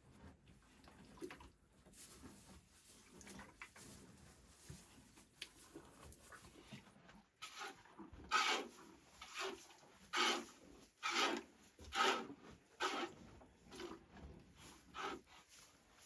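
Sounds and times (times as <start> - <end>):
rough scraping strokes: 7.4 - 13.9, 14.6 - 15.8.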